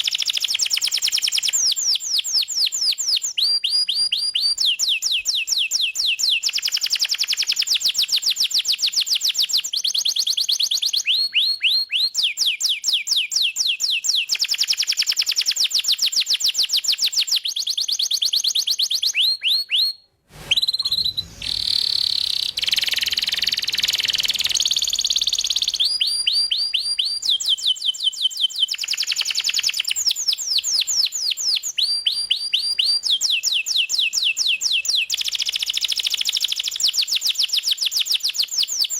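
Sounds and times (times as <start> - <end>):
canary singing trills: 20.6 - 31.1.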